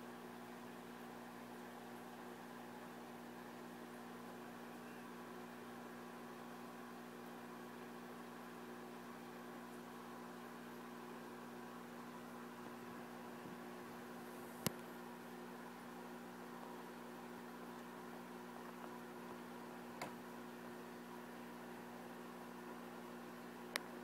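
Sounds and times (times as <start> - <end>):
faint electrical hum: 0.0 - 24.0.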